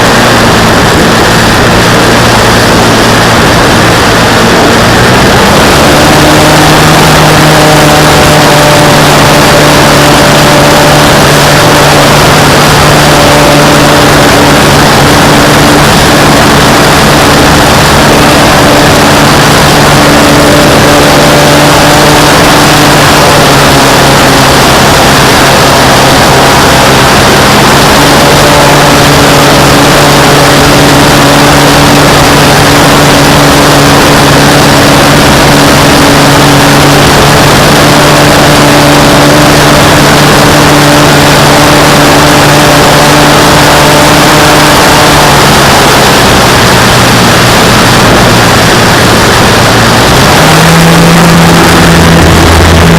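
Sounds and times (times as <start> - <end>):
model airplane motor and propeller: 0.0 - 52.9
wind rush over microphone: 0.0 - 52.9.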